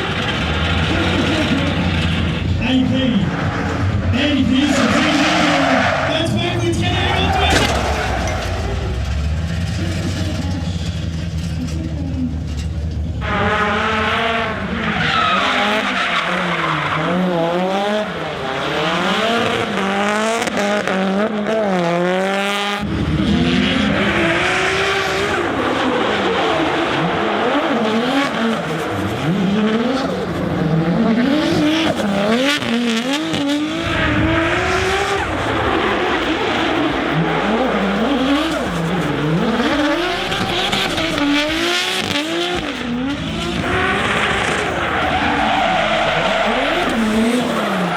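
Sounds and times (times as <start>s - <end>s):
tyres squealing: 0.0s - 17.4s, 23.7s - 47.9s
car engines revving: 0.0s - 47.9s.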